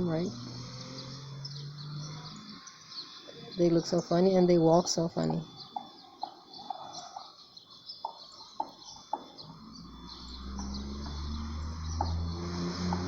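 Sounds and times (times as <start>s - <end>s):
low hum: 0.0s - 5.6s, 9.4s - 13.0s
small songbirds chirping: 0.0s - 13.0s.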